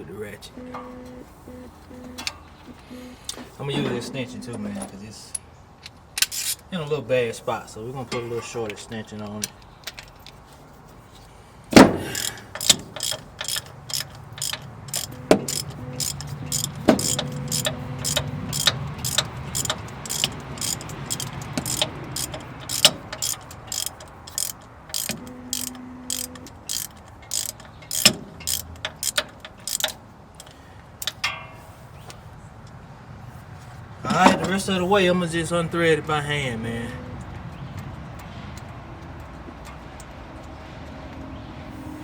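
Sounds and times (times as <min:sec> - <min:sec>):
ratchet clicking: 0:12.1 - 0:31.4.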